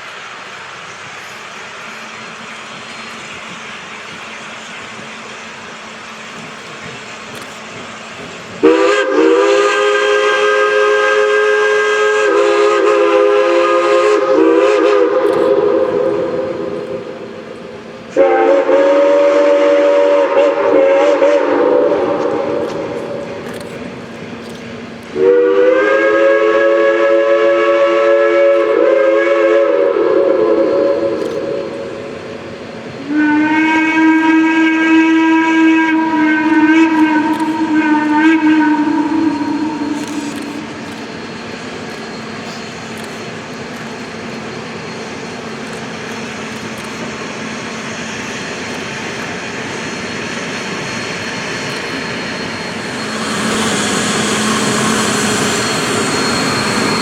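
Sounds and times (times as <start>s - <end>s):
lower single-note whistle: 50.0s - 57.0s.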